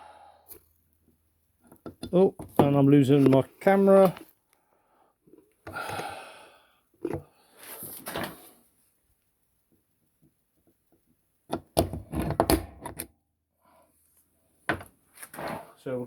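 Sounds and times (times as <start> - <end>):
tools knocking and clattering: 1.6 - 3.4.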